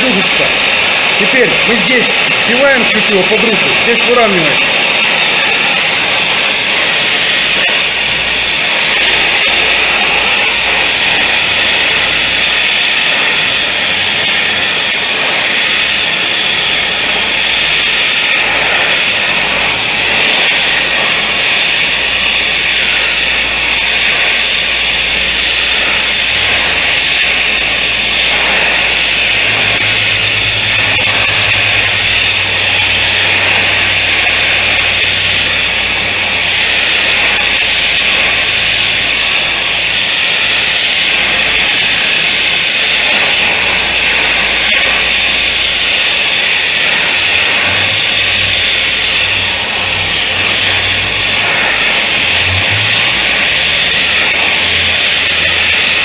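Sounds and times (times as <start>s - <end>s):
forge rushing noise: 0.0s - 56.0s
low hum: 23.2s - 36.6s, 52.1s - 54.0s.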